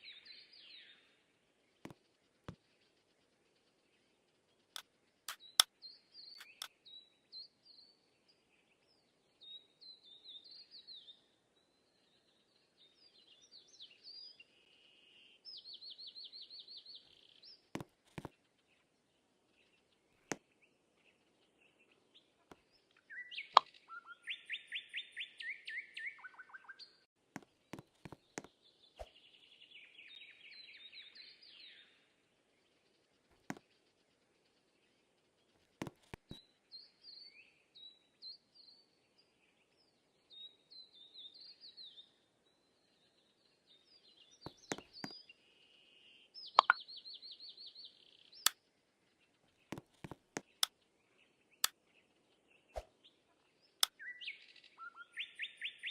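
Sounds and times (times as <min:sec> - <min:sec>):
small birds chirping and trilling: 0:00.0 - 0:55.9
sharp clicks: 0:06.4 - 0:06.7.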